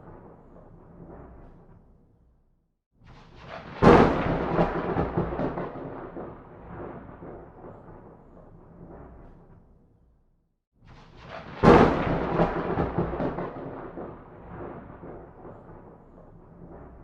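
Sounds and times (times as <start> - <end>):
thunderclap: 3.1 - 9.7, 10.9 - 17.0
thunder rumbling: 3.4 - 9.2, 11.2 - 17.0.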